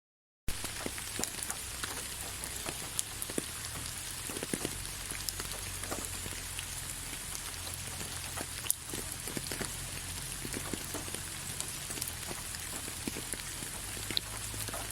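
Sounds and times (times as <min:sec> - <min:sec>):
rain falling: 0:00.5 - 0:14.9
drops ticking on a surface: 0:00.6 - 0:14.9
low steady rumble: 0:00.7 - 0:14.9.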